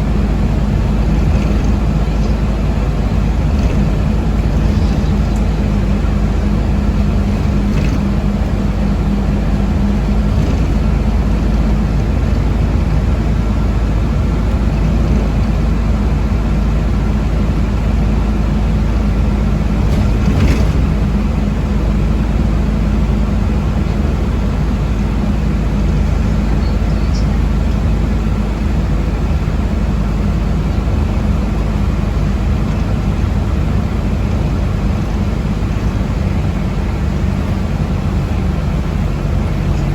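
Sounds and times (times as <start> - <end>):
bus cabin rumble: 0.0 - 39.9.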